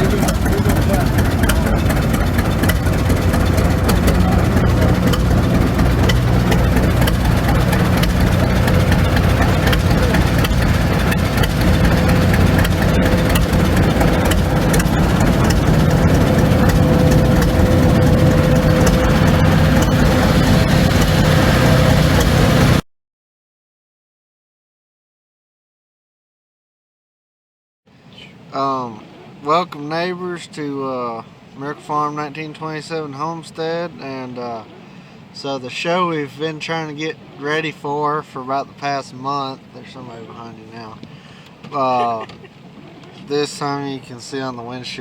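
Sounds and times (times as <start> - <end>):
engine running with thin whine: 0.0 - 22.8.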